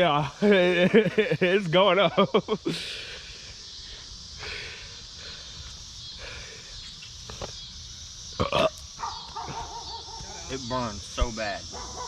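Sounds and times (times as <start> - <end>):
person burping loudly: 8.4 - 8.8.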